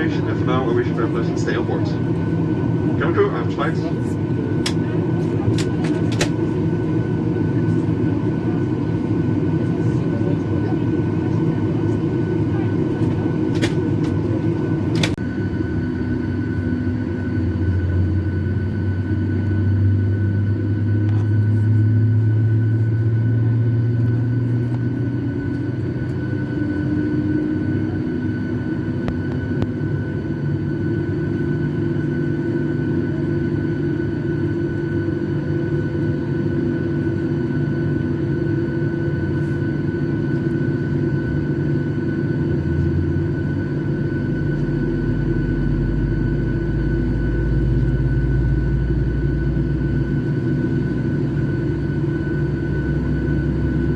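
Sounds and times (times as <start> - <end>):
airliner cabin hum: 0.0 - 53.9
deep engine drone: 0.0 - 53.9
whining tones: 42.7 - 53.9.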